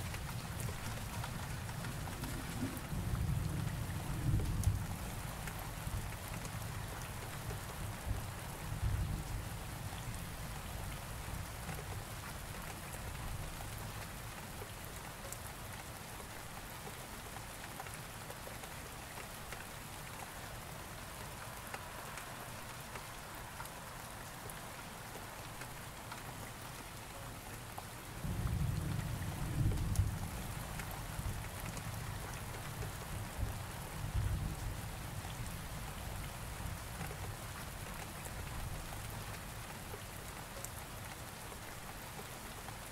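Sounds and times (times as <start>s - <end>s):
steady rain falling: 0.0s - 42.9s
thunder rumble: 1.8s - 4.8s.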